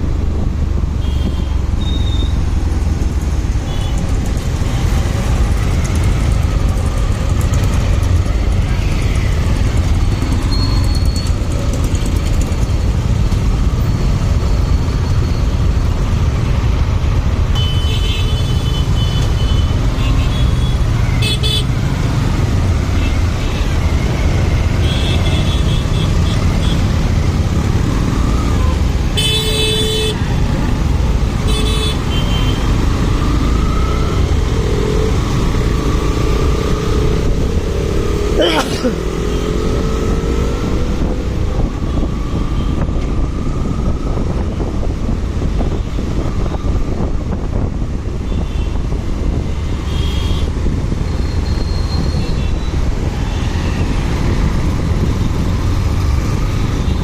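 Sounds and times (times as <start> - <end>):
motorcycle engine and wind rumble: 0.0 - 17.6, 18.3 - 57.0
motorcycle engine: 1.0 - 13.7
wind rumble on microphone: 40.1 - 57.0.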